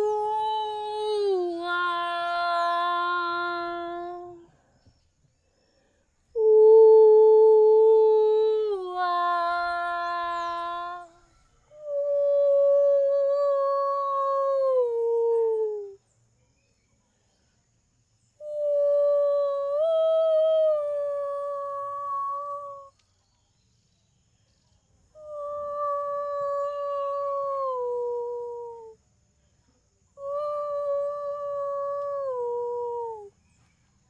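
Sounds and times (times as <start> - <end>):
woman holding wordless tones: 0.0 - 4.5, 6.4 - 16.0, 18.4 - 23.0, 25.2 - 29.0, 30.2 - 33.3.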